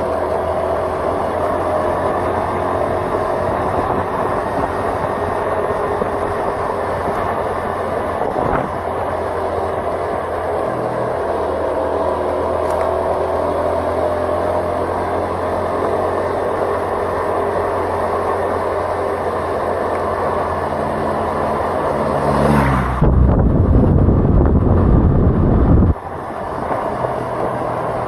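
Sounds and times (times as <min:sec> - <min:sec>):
tyre and wind noise: 0:00.0 - 0:11.2, 0:19.3 - 0:28.0
vehicle engine running: 0:00.0 - 0:28.0
rough low rumble: 0:22.6 - 0:26.0.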